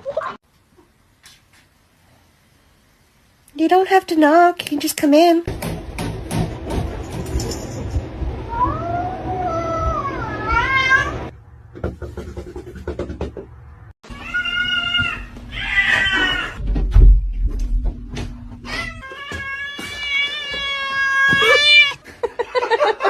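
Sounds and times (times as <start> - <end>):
cats meowing and yowling: 8.5 - 11.3, 14.1 - 16.6, 18.7 - 22.0
dull low thump: 16.6 - 18.7.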